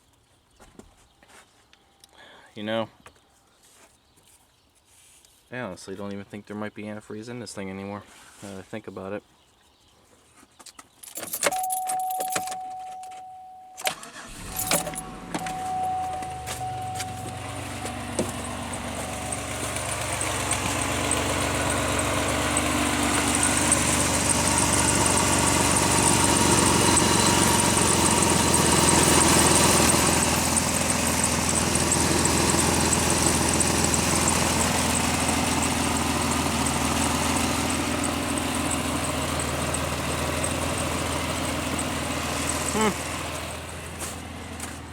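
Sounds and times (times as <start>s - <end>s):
keys jingling: 11.0s - 19.5s
car chime: 11.4s - 22.8s
car engine idling: 11.5s - 44.9s.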